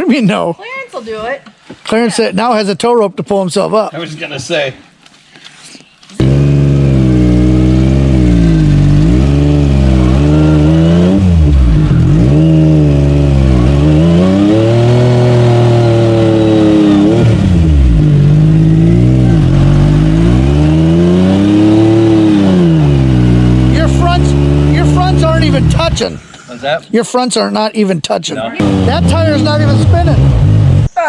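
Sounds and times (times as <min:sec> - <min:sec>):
utility vehicle engine revving: 0:06.2 - 0:26.4, 0:28.6 - 0:31.0.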